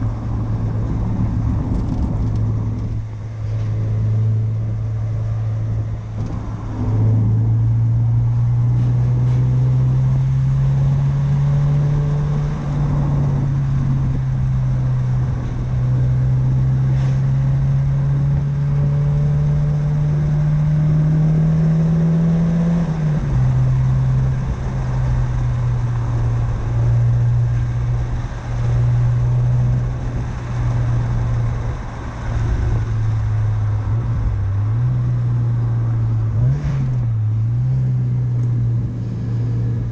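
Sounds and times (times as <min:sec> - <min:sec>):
car engine running: 0:22.8 - 0:39.9.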